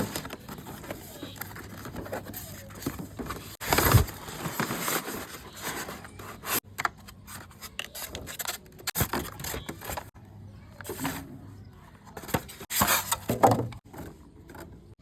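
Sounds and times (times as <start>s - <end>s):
objects scraping and clicking: 0.0s - 10.2s.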